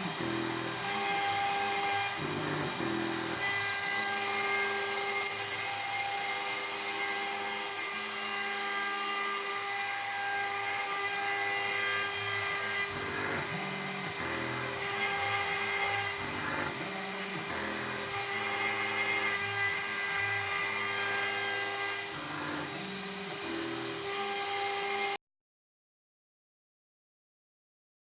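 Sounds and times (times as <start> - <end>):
stepper motors humming: 0.0 - 6.3, 10.8 - 24.6
router spindle whine: 0.0 - 25.2.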